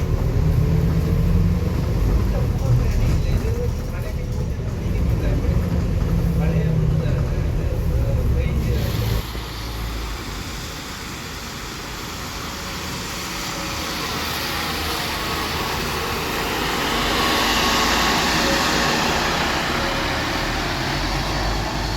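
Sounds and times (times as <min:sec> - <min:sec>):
bus engine and road noise: 0:00.0 - 0:21.9.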